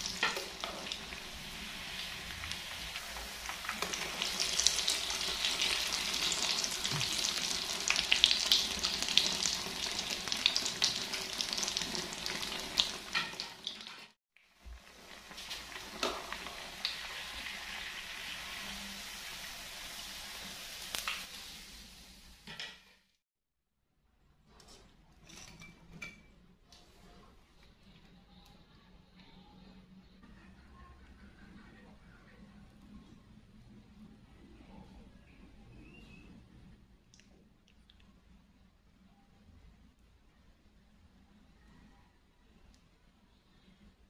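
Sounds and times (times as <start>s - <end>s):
noodles sizzling in hot oil: 0.0s - 22.6s.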